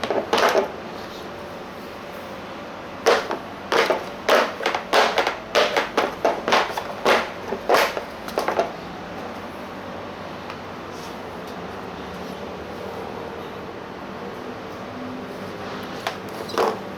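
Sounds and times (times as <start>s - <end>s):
short knocks and scrapes: 3.1s - 8.6s.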